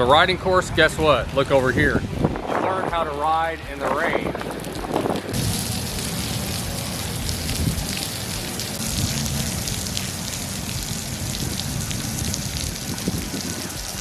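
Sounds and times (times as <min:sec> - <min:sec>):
low rumble: 0:00.0 - 0:14.0
rain drops pattering: 0:03.8 - 0:14.0.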